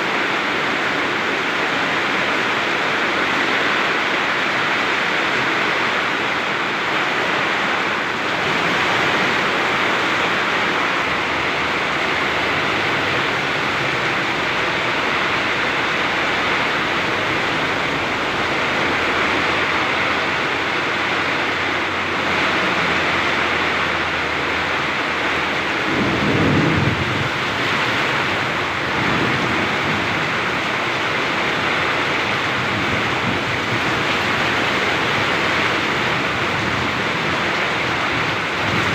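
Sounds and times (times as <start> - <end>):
heavy rain pouring: 0.0 - 38.9
low rumble of thunder: 10.5 - 38.9.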